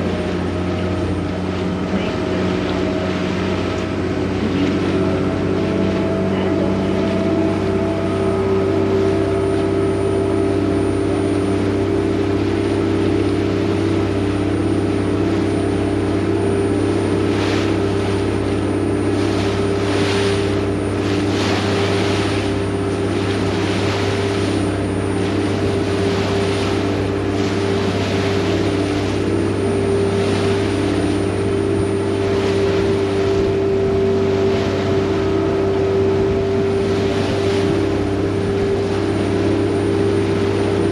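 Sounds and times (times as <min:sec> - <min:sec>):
boat engine drone: 0:00.0 - 0:40.9.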